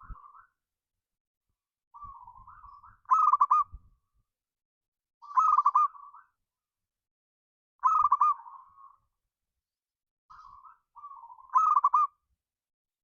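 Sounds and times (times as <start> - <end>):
dove cooing song: 2.0 - 3.8, 5.2 - 6.2, 7.8 - 8.9, 10.3 - 12.2.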